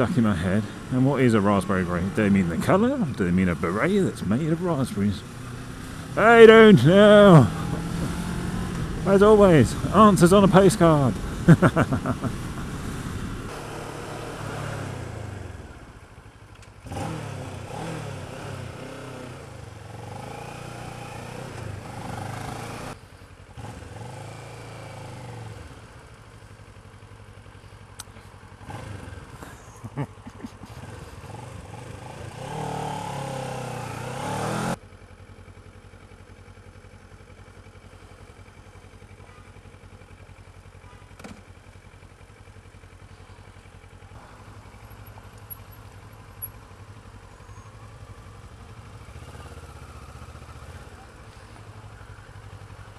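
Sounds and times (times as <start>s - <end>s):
motorcycle engine revving: 0.0s - 26.5s, 28.0s - 34.8s, 41.0s - 52.9s.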